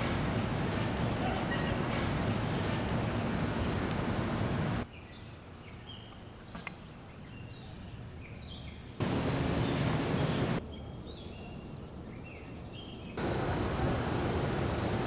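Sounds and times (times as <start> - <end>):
loud steady rushing noise: 0.0 - 4.8, 9.0 - 10.6, 13.2 - 15.0
small birds chirping: 0.0 - 15.0.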